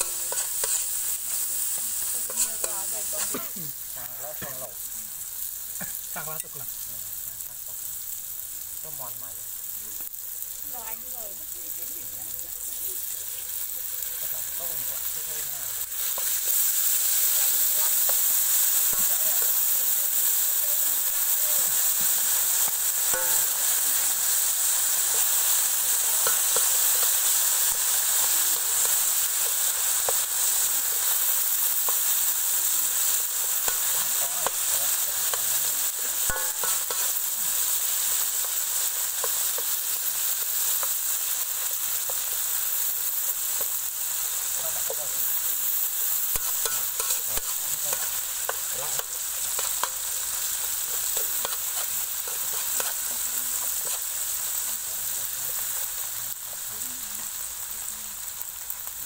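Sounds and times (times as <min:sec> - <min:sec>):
metal spoon scraping wok: 0:00.0 - 0:03.6, 0:13.0 - 0:32.1, 0:32.9 - 0:42.5, 0:43.4 - 0:56.1
food sizzling in hot oil: 0:00.0 - 0:59.0.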